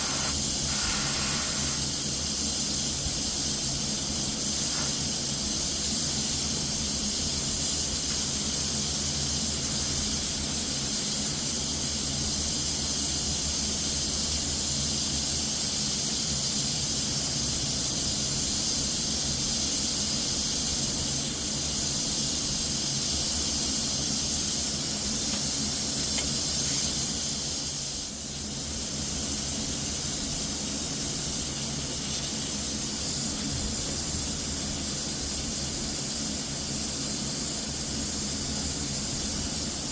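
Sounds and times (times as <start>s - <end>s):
spray gun hissing: 0.0s - 2.6s, 4.2s - 5.8s.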